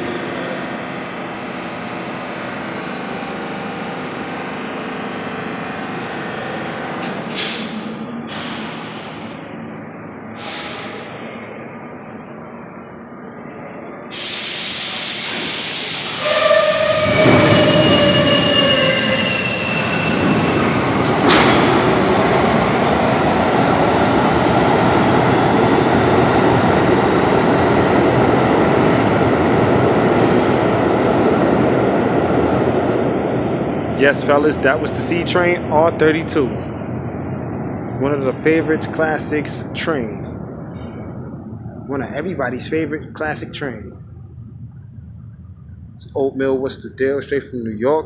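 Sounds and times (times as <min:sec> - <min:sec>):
subway train rumbling past: 0:00.0 - 0:48.0
train horn blast: 0:16.2 - 0:19.3.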